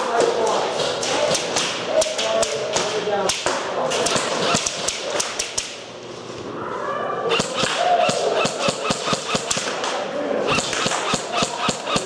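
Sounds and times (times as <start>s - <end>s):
airsoft guns firing: 1.0s - 5.8s, 7.3s - 12.0s
indistinct shouting: 6.6s - 8.8s.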